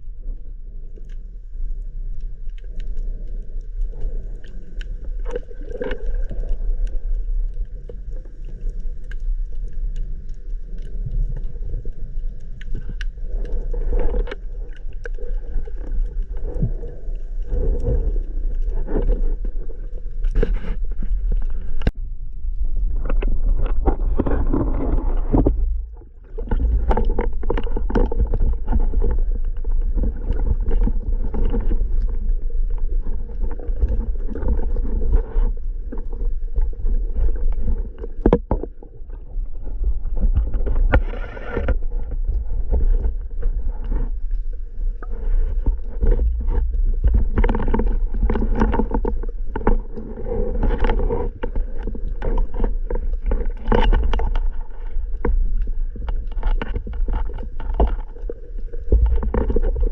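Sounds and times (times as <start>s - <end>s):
water rumble: 0.0s - 59.9s
water splashes and knocks: 23.0s - 44.1s, 45.0s - 59.9s.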